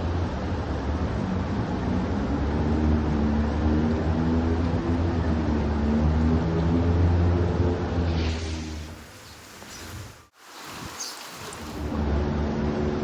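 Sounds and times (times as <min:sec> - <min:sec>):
hiss of rain and water: 0:08.1 - 0:12.1.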